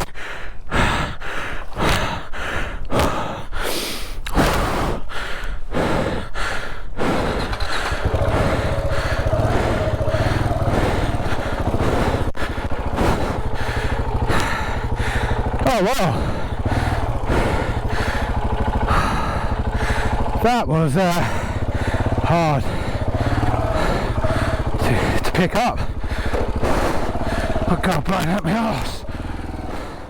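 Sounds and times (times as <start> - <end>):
person panting hard: 0.0 - 30.0
motorcycle engine idling: 7.0 - 30.0.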